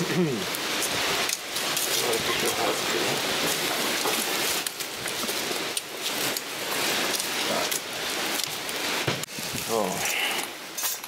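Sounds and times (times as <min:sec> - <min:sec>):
food sizzling over campfire: 0:00.0 - 0:11.0.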